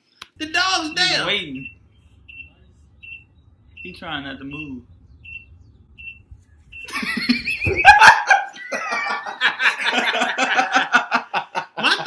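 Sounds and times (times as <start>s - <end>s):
men laughing: 6.9s - 12.0s.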